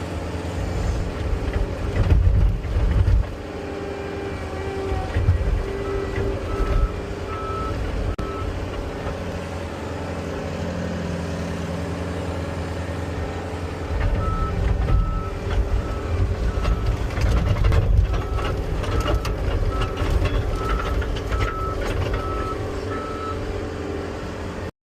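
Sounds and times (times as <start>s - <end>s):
diesel engine running: 0.0s - 24.7s
clanks: 14.0s - 22.3s.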